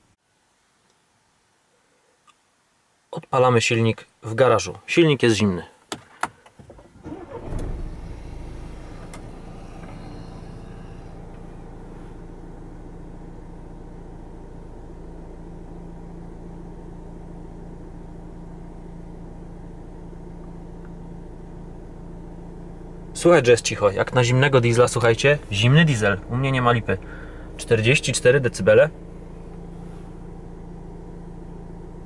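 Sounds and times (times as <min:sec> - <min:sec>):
faint hiss: 0:00.0 - 0:12.9
diesel engine idling: 0:07.0 - 0:32.0.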